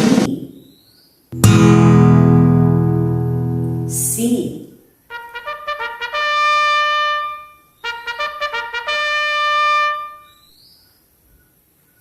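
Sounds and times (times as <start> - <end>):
trumpet playing: 5.1 - 10.4.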